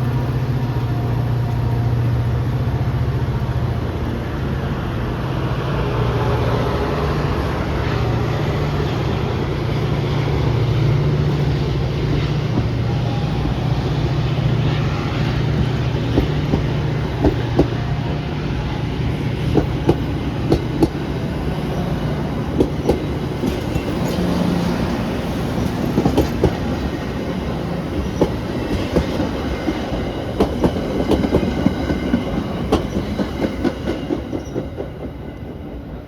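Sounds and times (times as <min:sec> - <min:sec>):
train rumble: 0:00.0 - 0:36.0
train wheels clicking over rail joints: 0:09.4 - 0:35.3.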